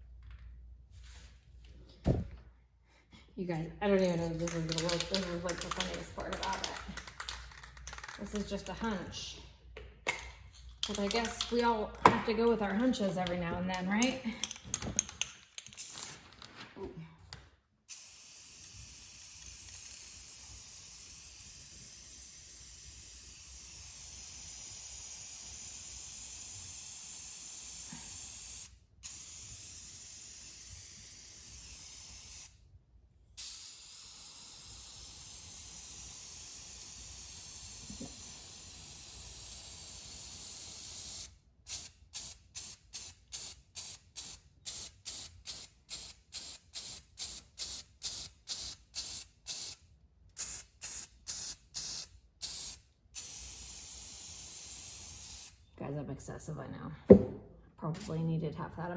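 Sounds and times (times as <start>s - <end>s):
aerosol can spraying: 17.9s - 32.6s, 33.4s - 49.8s, 50.4s - 55.6s.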